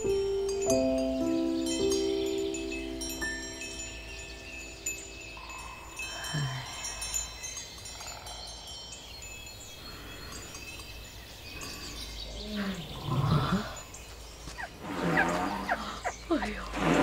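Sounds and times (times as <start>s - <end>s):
wind chimes tinkling: 0.0s - 16.7s
elephant call: 14.6s - 17.0s.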